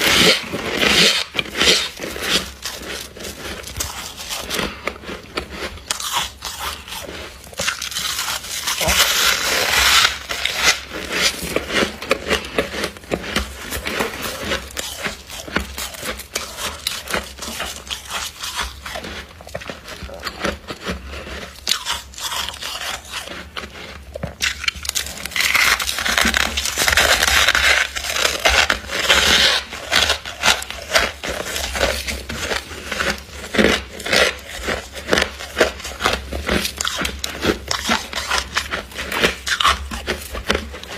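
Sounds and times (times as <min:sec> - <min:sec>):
ice crumbling and scraping: 0:00.0 - 0:40.9
ice crunching: 0:00.0 - 0:40.9.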